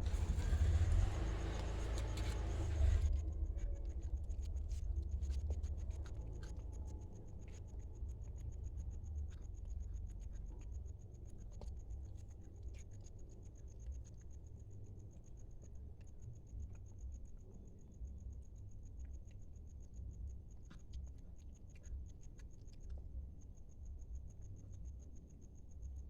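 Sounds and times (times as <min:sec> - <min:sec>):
cat eating from plate: 0:00.0 - 0:08.4
low rumble: 0:00.0 - 0:12.2.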